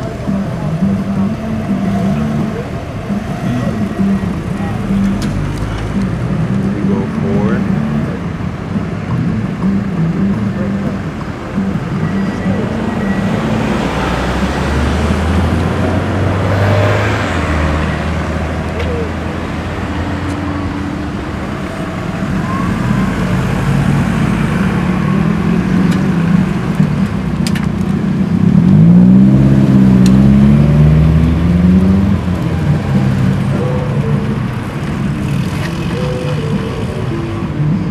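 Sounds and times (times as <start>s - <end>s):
car engines driving past: 0.0s - 37.9s
car revving up: 0.0s - 37.9s.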